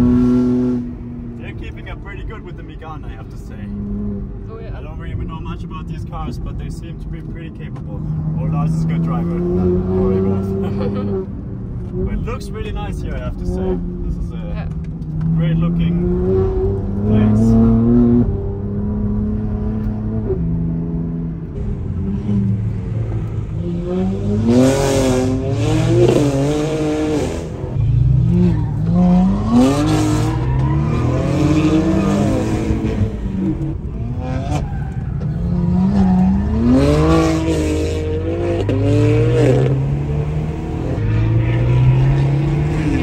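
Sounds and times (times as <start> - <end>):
car engine revving hard: 0.0 - 2.4, 7.4 - 11.3, 15.2 - 21.3, 22.0 - 34.7, 35.4 - 43.0
tyre squeal: 29.6 - 32.4, 34.2 - 37.2.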